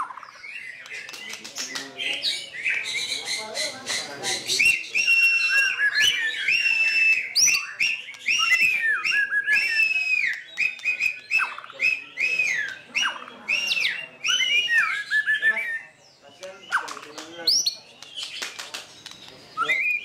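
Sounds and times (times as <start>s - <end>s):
sharp bird clicks: 0.0s - 2.8s, 6.9s - 9.6s, 10.2s - 13.9s, 16.4s - 20.0s
bird singing whistled phrases: 4.4s - 18.4s, 19.0s - 20.0s.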